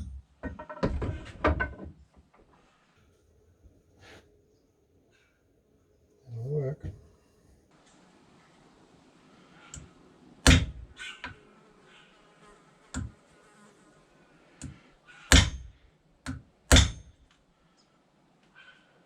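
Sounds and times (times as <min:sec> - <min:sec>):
hammer striking steel punch: 0:15.3 - 0:15.7, 0:16.7 - 0:17.0.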